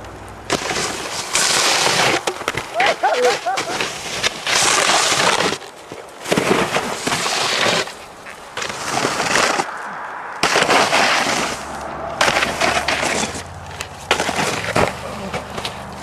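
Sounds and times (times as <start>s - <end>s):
rushing scraping noise: 0.5s - 2.6s, 3.2s - 16.0s.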